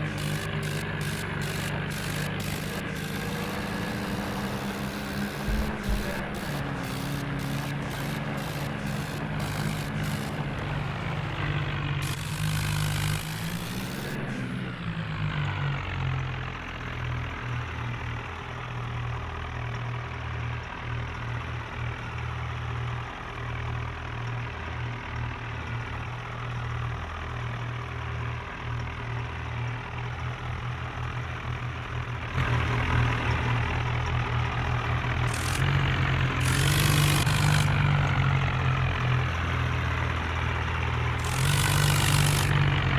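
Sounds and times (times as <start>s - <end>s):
tractor engine running: 0.0s - 15.6s, 31.0s - 42.9s.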